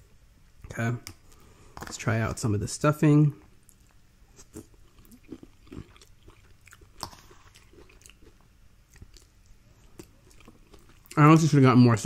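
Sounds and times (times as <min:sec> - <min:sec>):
chewing soft food: 0:03.6 - 0:11.6.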